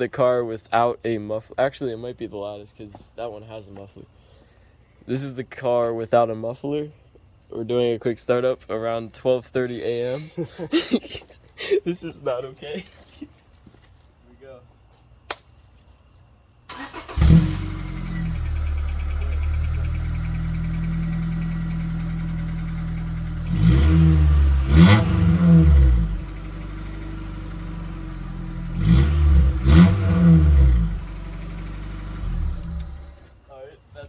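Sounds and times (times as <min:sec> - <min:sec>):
car engine starting and revving: 0:16.7 - 0:33.3.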